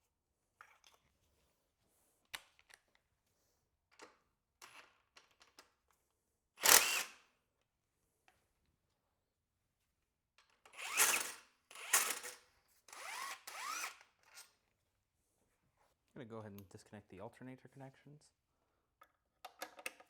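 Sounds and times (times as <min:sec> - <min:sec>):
cordless power tool bursts: 0:06.6 - 0:07.2, 0:10.7 - 0:14.1.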